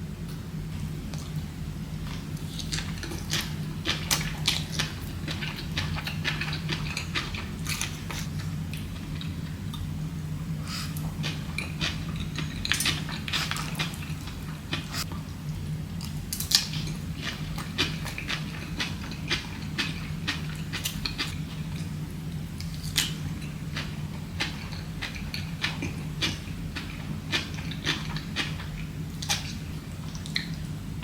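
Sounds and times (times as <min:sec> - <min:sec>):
steady low hum: 0:00.0 - 0:31.0
chewing and biting: 0:16.0 - 0:21.4, 0:22.6 - 0:30.6.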